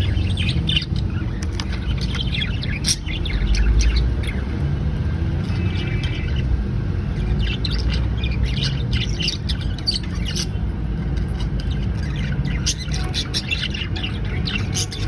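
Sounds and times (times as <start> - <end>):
budgerigars chirping and squawking: 0.0 - 15.0
steady low rumble: 0.0 - 15.0.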